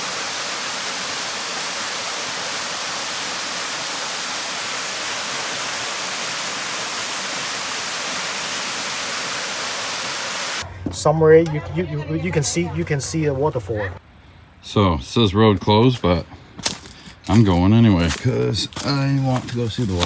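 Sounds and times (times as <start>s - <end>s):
waterfall rushing: 0.0s - 10.6s.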